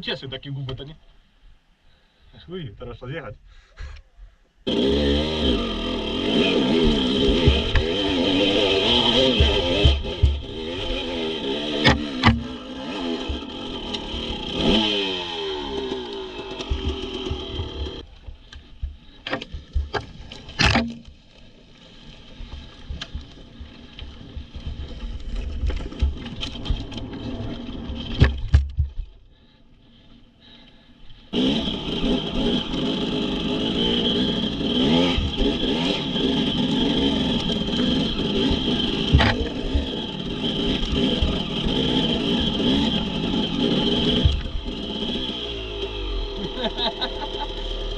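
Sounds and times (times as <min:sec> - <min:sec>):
dirt bike engine running: 0:04.6 - 0:29.5, 0:31.2 - 0:47.9
knocks scrapes and rattles: 0:06.4 - 0:12.6.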